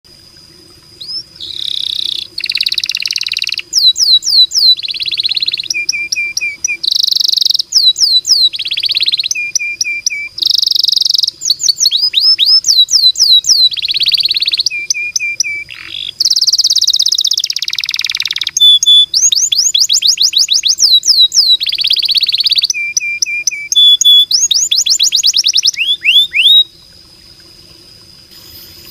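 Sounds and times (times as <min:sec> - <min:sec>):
canary singing: 0:01.0 - 0:26.7.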